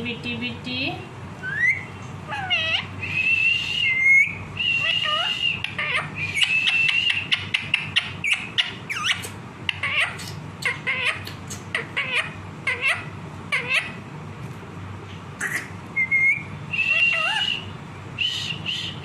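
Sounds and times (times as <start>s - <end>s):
parrot whistling: 1.4s - 14.0s, 15.4s - 19.0s
parrot clicks and squawks: 7.4s - 12.9s.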